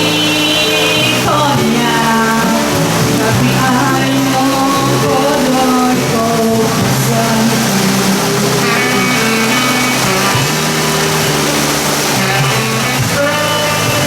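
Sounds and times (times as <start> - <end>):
heavy rain hissing: 0.0 - 14.0
live band music: 0.0 - 14.0.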